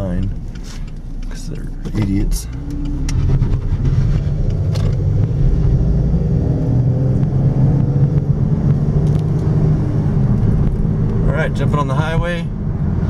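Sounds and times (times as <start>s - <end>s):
car engine accelerating: 0.0s - 13.0s
road rumble: 0.0s - 13.0s.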